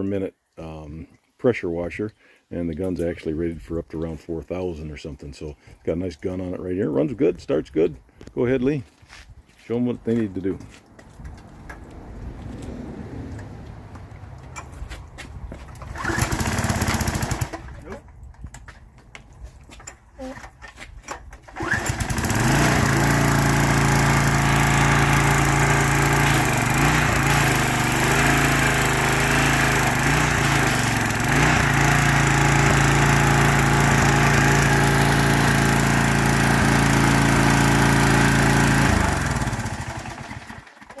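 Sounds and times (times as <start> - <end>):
small gas engine running: 15.6 - 18.1, 20.2 - 41.0.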